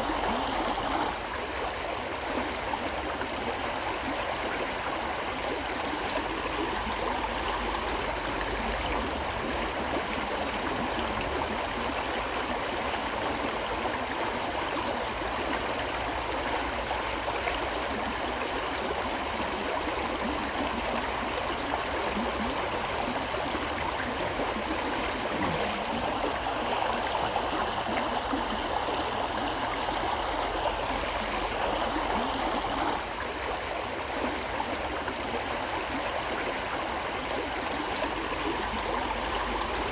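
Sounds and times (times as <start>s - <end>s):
river water rushing: 0.0s - 1.4s, 21.9s - 39.9s.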